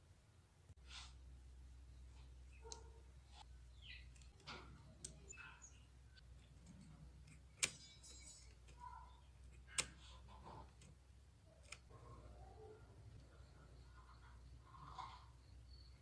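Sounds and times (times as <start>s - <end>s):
sharp clicks: 6.5s - 11.9s.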